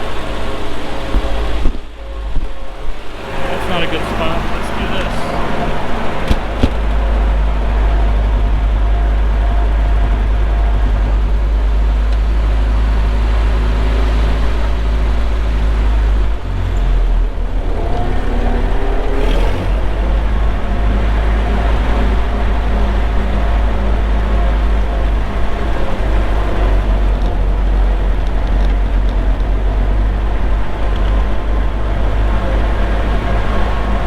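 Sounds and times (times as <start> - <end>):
wind rumble on microphone: 0.0 - 3.5, 5.3 - 34.0
tractor engine running: 0.0 - 34.0.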